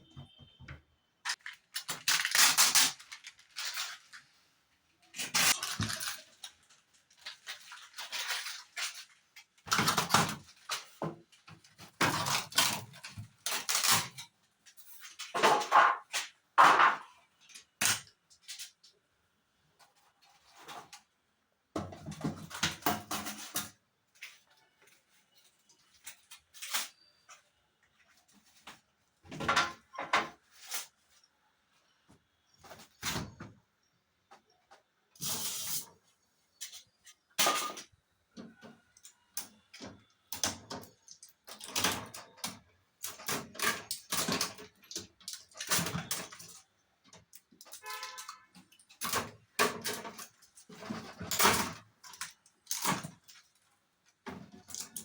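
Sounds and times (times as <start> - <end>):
handling rustles scrapes and knocks: 43.2 - 55.0.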